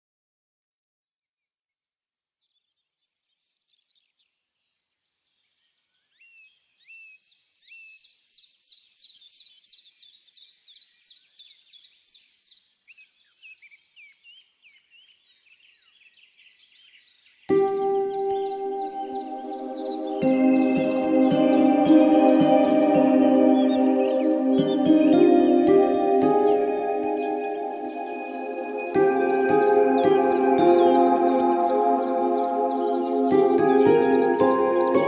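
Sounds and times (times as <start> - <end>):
birds chirping: 17.5 - 35.0.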